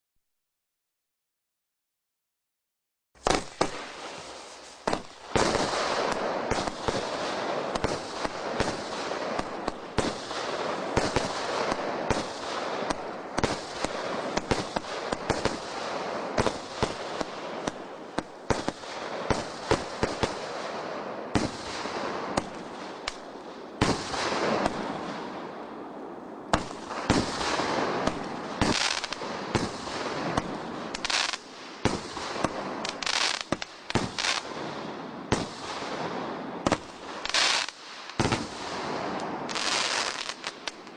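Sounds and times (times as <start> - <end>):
aerial fireworks bursts: 3.2 - 40.9
crackling fireworks stars: 3.2 - 40.9.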